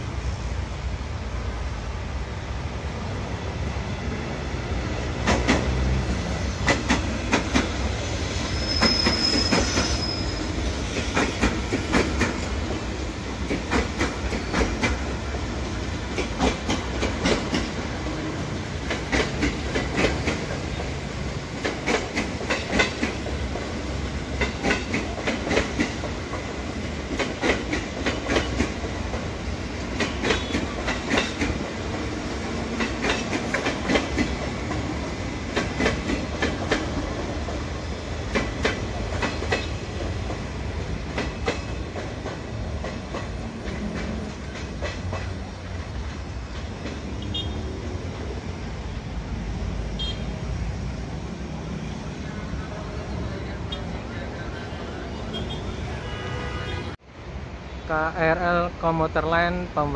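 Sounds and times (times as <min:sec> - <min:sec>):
low train rumble: 0:00.0 - 0:59.9
train wheels clacking over joints: 0:05.2 - 0:05.8, 0:06.6 - 0:12.8, 0:13.4 - 0:15.4, 0:16.1 - 0:17.8, 0:18.8 - 0:47.1
high wheel squeal: 0:08.1 - 0:10.8.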